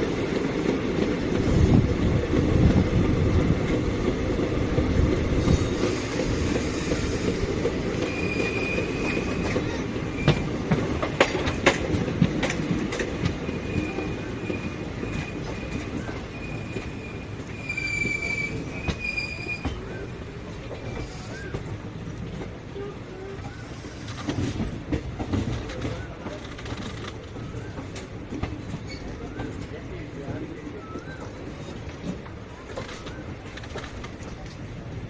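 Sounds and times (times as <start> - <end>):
train wheels rumbling: 0.0 - 35.0
rail-joint clacks: 3.7 - 30.4
high wheel squeal: 8.1 - 9.6, 13.6 - 20.1.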